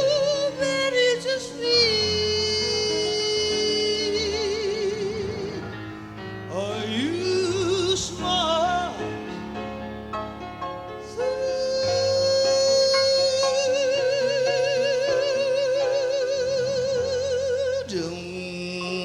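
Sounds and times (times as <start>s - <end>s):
piano chords: 0.0s - 19.0s.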